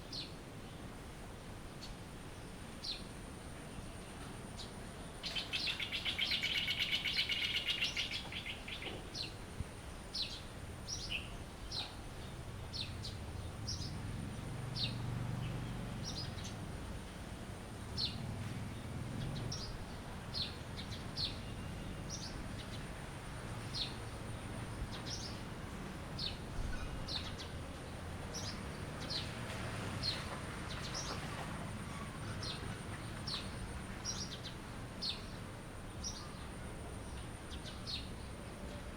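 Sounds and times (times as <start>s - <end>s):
high down-sweeping bird chirps: 5.3s - 8.9s.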